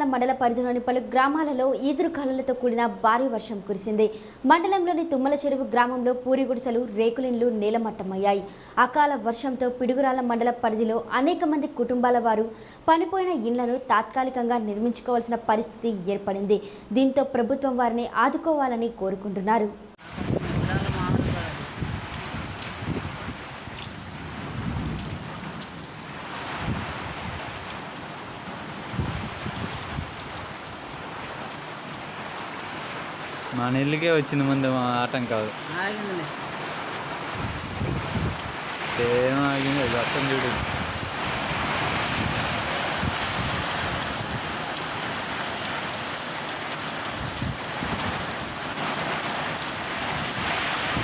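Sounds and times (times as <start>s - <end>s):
wind buffeting microphone: 20.0s - 25.4s, 26.5s - 27.7s, 28.9s - 30.6s, 37.3s - 39.0s, 39.6s - 45.1s, 47.1s - 48.3s, 50.0s - 51.0s
heavy rain pouring: 20.0s - 51.0s.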